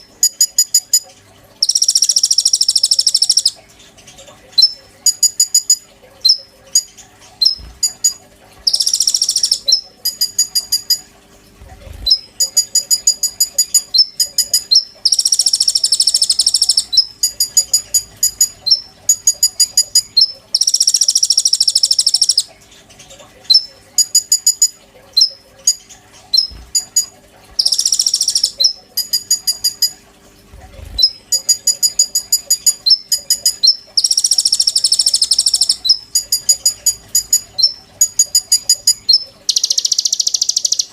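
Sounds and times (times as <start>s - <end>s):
buzzing bird trill: 0.0s - 22.6s, 23.5s - 40.9s
faint steady hum: 0.0s - 40.9s
songbird high chirps: 1.6s - 3.6s, 4.6s - 11.0s, 12.0s - 22.5s, 27.6s - 30.0s, 31.0s - 40.9s.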